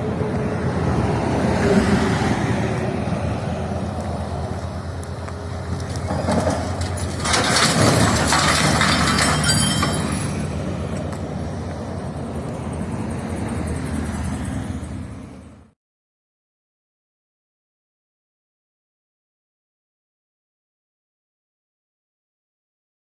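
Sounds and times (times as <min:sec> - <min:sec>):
vehicle road and engine noise: 0:00.0 - 0:15.8
rushing crackling noise: 0:02.7 - 0:09.3.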